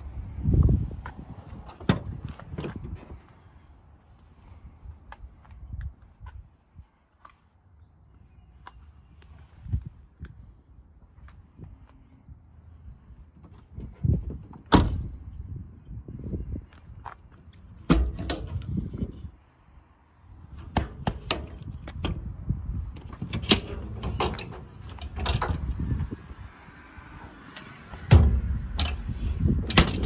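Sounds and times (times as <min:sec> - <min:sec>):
truck door banging: 0:14.6 - 0:15.1, 0:28.0 - 0:30.0
latch clicks and knocks: 0:23.0 - 0:25.6, 0:29.7 - 0:30.0.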